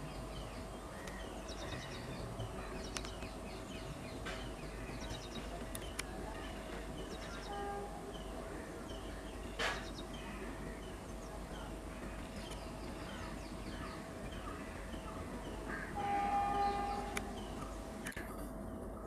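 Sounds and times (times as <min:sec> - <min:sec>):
birds chirping and calling: 0:00.0 - 0:18.1
faint steady hum: 0:00.0 - 0:19.0.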